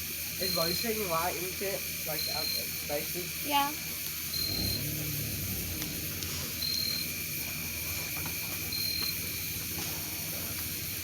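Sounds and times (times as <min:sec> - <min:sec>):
high insect drone: 0:00.0 - 0:11.0
insect high chirp: 0:00.0 - 0:11.0.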